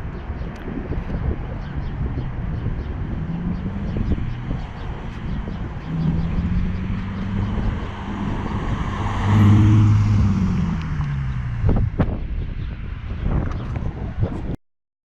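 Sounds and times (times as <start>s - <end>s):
car engine revving: 2.4s - 12.4s.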